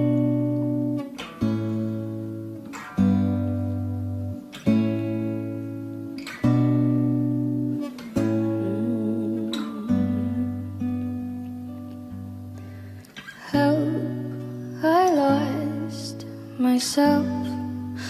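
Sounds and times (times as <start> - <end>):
acoustic guitar strummed chords: 0.0 - 18.0.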